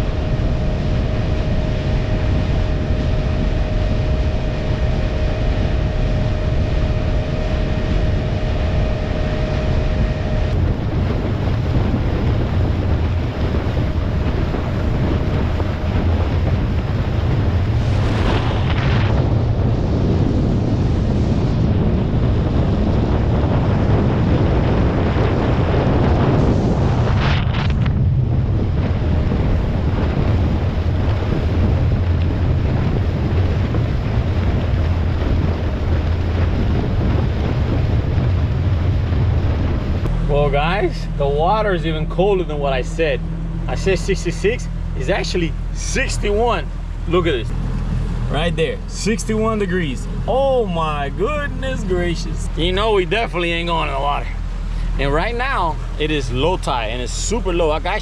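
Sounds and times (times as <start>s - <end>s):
boat motor tone: 0.0s - 58.0s
water rushing past: 0.0s - 58.0s
wind buffeting microphone: 0.0s - 58.0s
brief whooshes: 17.6s - 19.2s.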